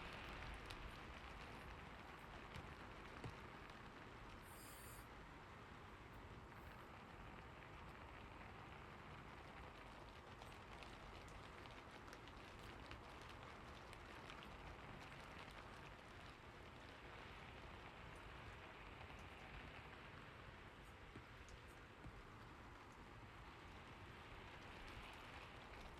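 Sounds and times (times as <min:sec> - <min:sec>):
faint steady rain: 0:00.0 - 0:25.9.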